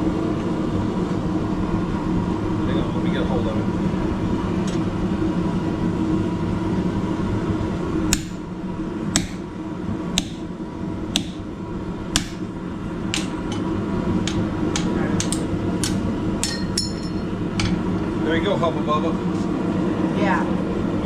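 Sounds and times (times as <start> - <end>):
steady hum: 0.0 - 21.0
hammer striking hot steel: 8.1 - 8.5, 9.1 - 9.5, 10.2 - 10.5, 11.1 - 11.5, 12.1 - 12.5, 13.1 - 17.8.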